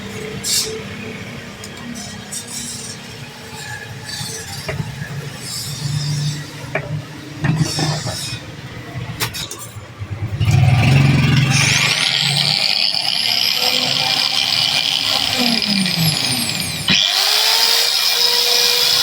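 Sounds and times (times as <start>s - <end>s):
angle grinder whining: 10.2s - 19.0s.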